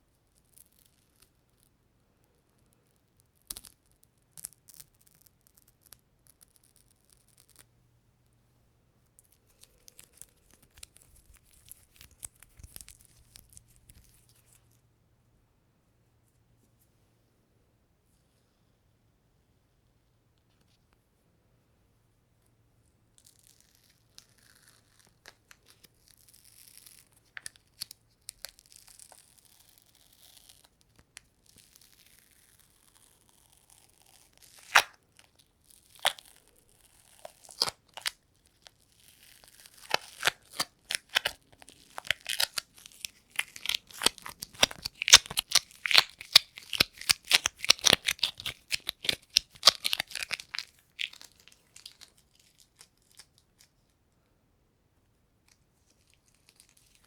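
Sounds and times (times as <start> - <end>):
sticky adhesive crackling: 39.4 - 52.9.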